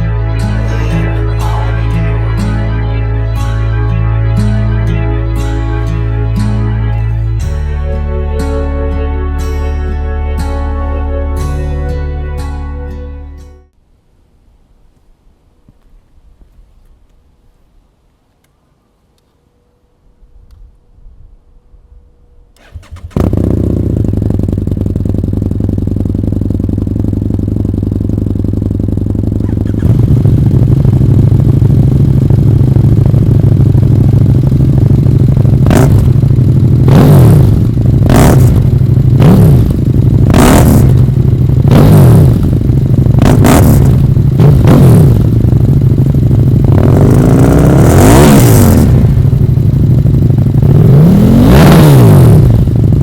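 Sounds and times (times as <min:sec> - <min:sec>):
motorcycle engine idling and revving: 0:22.6 - 0:53.0.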